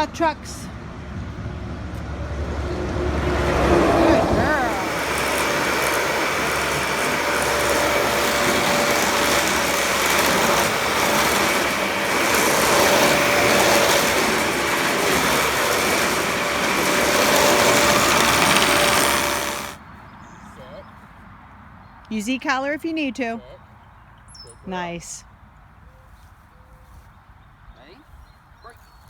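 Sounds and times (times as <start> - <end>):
engine running with whine: 1.4 - 19.8.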